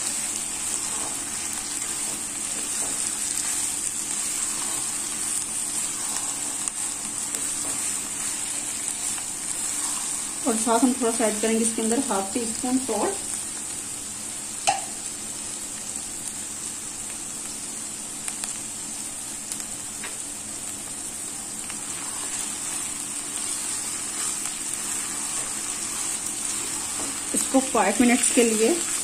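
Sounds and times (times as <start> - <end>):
food sizzling in oil in a wok: 0.0 - 29.0.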